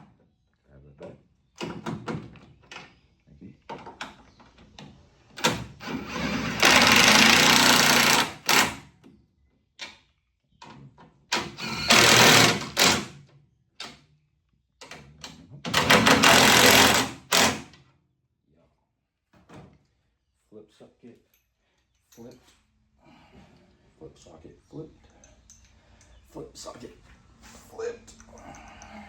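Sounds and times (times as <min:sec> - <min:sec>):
impact wrench hammering bolts: 0:11.4 - 0:13.2, 0:15.7 - 0:17.8
tools and parts clanking: 0:21.2 - 0:22.7, 0:25.0 - 0:26.3.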